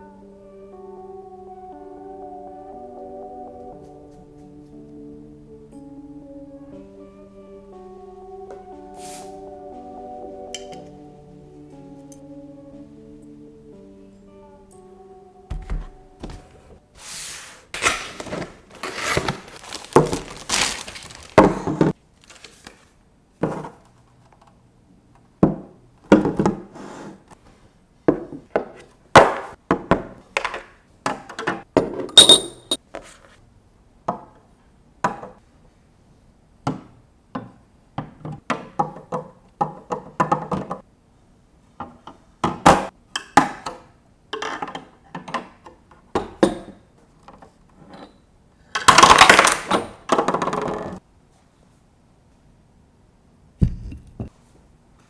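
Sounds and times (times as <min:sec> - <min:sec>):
objects knocking on hard surface: 0:15.5 - 0:16.6, 0:53.6 - 0:54.4
bright ringing clink: 0:32.2 - 0:32.8.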